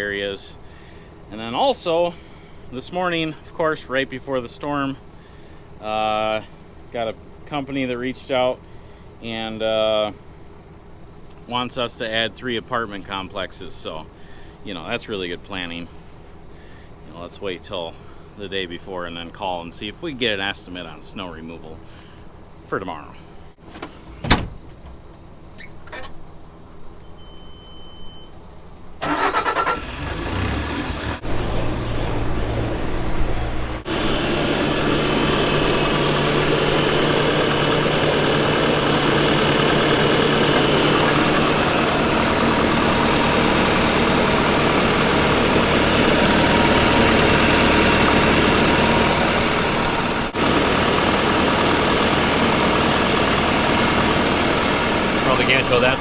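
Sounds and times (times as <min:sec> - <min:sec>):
short electronic beep: 0:27.0 - 0:28.4
diesel engine cranking and running: 0:29.0 - 0:56.0.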